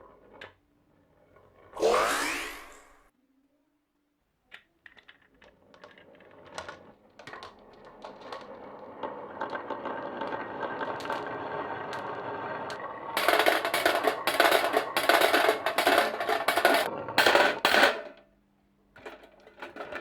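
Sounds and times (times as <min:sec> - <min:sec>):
marbles clattering on wooden track: 0:04.5 - 0:18.3, 0:19.0 - 0:20.0.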